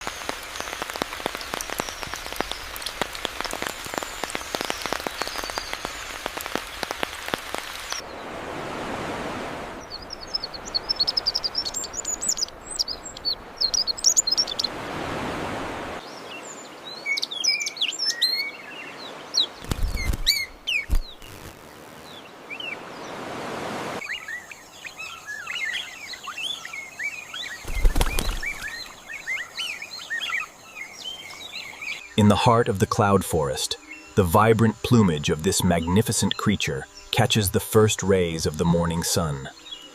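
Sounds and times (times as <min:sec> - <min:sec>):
dense crackling patter: 0:00.0 - 0:08.0
birds chirping: 0:00.0 - 0:08.4, 0:09.7 - 0:14.8, 0:16.0 - 0:23.2, 0:24.0 - 0:39.9.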